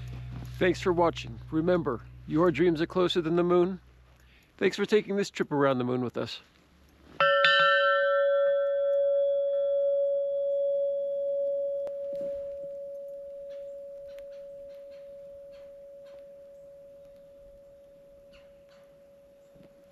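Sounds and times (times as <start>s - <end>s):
bell-like note ringing: 7.2s - 19.9s
faint ticks: 11.8s - 18.9s.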